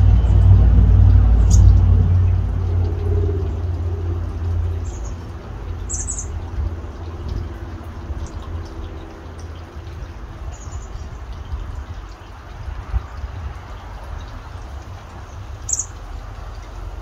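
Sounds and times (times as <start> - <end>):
low rumble: 0.0 - 9.0
fountain water splashing: 0.0 - 17.0
high bird chirps: 5.9 - 6.4, 15.6 - 16.0.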